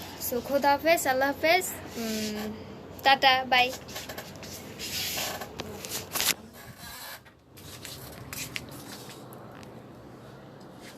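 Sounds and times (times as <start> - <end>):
rustling and scraping: 1.8 - 2.6, 3.6 - 9.7.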